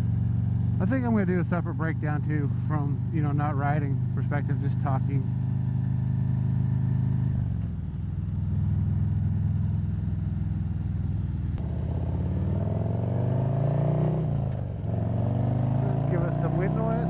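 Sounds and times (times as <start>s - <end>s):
motorcycle engine revving: 0.0s - 7.6s, 11.6s - 17.0s.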